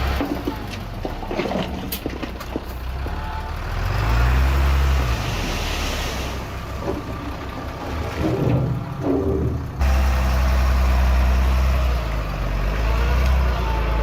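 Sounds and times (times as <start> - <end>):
diesel engine revving: 2.8 - 14.0.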